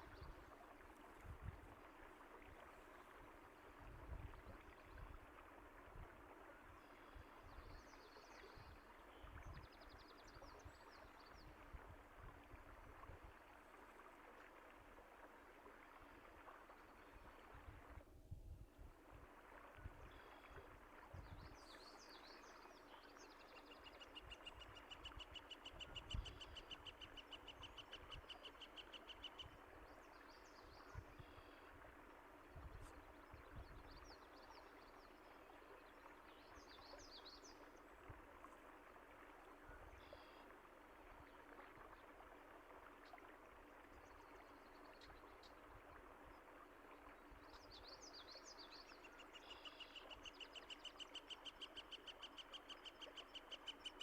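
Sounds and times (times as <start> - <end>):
flowing water rushing: 28.8 - 49.0.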